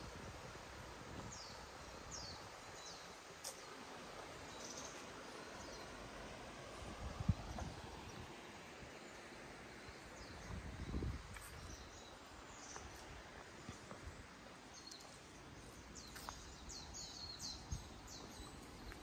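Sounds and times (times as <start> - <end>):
outdoor background noise: 0.0 - 19.0
small birds chirping: 1.3 - 3.8, 4.4 - 6.0, 9.1 - 19.0.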